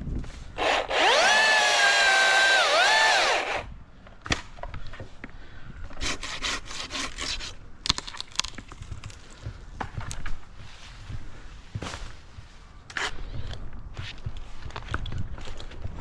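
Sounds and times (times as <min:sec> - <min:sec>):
chainsaw cutting: 0:00.6 - 0:03.7.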